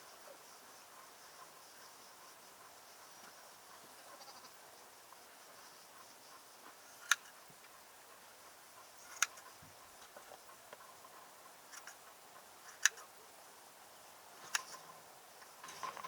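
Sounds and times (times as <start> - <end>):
faint ticks: 9.0 - 12.1, 12.7 - 13.1
sharp clicks: 9.1 - 9.4, 12.7 - 13.1, 14.4 - 14.8.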